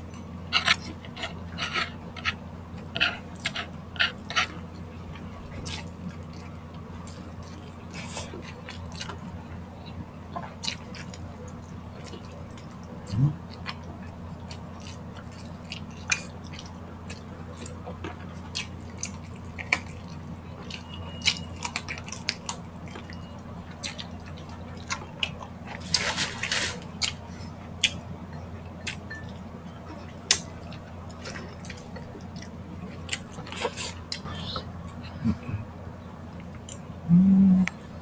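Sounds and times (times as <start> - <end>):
chewing mouth clicks and lip smacks: 27.8 - 28.0.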